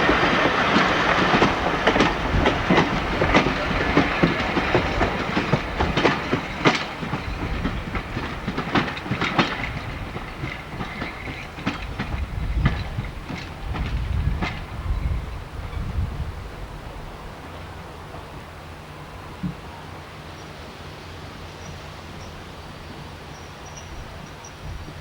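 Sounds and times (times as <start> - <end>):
train wheels clattering over joints: 0.0 - 16.3
low train rumble: 0.0 - 25.0.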